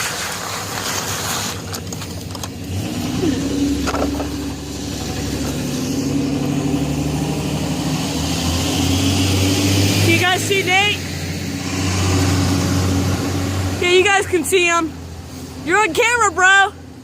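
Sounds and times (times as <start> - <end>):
vehicle engine humming: 1.6 - 17.0
rushing noise: 4.5 - 14.5.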